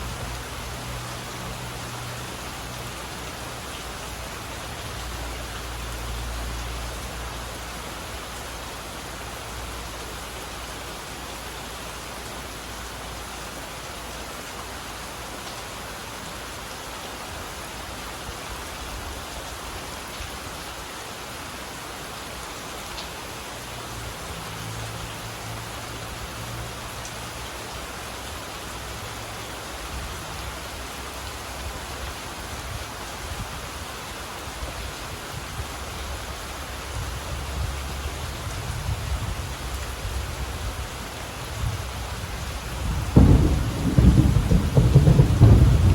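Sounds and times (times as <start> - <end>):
steady rain falling: 0.0 - 45.9
distant thunder rumble: 42.7 - 45.9.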